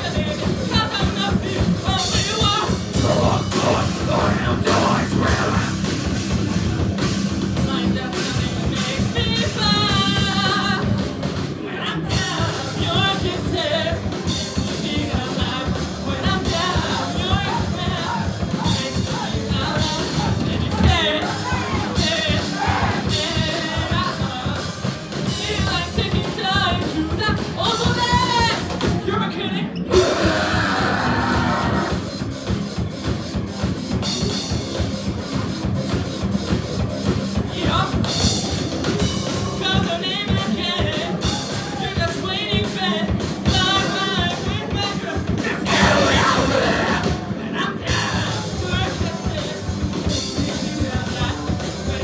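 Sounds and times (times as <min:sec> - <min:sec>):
person singing: 0:00.0 - 0:06.2, 0:07.6 - 0:32.2, 0:37.4 - 0:52.0
drum kit beat: 0:00.0 - 0:29.2, 0:29.9 - 0:52.0
rock band playing live: 0:00.0 - 0:52.0.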